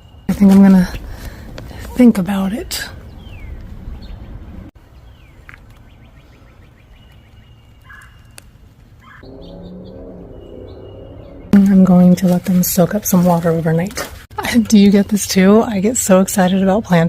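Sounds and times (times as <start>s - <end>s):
birds chirping: 0.0s - 17.0s
low background rumble: 0.4s - 6.4s.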